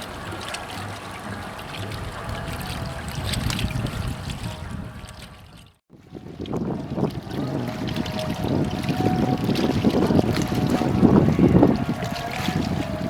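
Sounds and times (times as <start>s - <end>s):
water: 0.0s - 13.0s
wind on microphone: 0.0s - 13.0s
ship engine drone: 6.2s - 13.0s.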